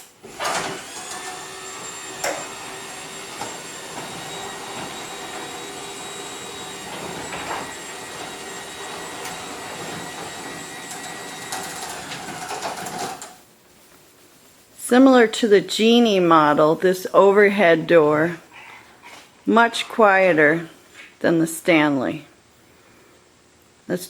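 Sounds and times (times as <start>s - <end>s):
garage door opener motor humming: 0.0s - 13.4s.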